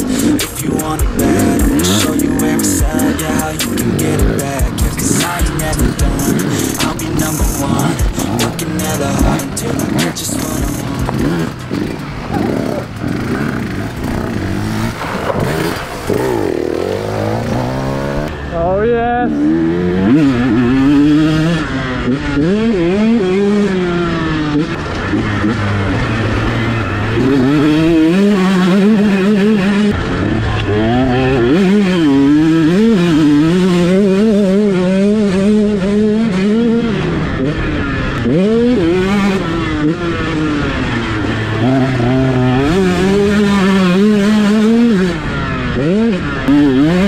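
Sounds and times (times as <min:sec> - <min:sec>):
off-road motorcycle engine revving: 0:00.0 - 0:47.0.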